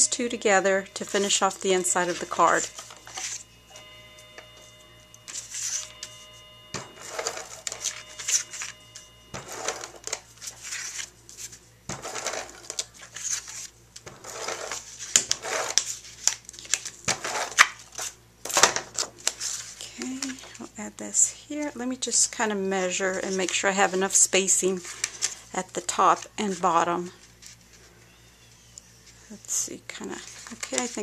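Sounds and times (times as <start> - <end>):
paper rustling and scraping: 1.0 - 4.7, 5.3 - 20.6, 22.8 - 24.2, 24.8 - 25.5, 26.2 - 27.9, 30.1 - 31.0.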